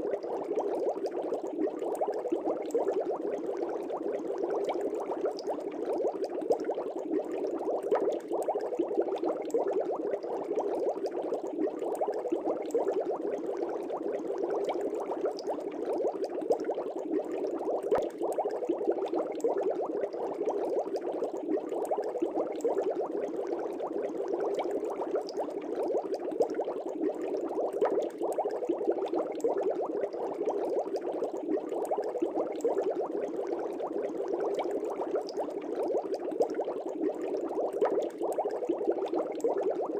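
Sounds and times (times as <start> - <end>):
air bubbles in fish tank: 0.0 - 39.9.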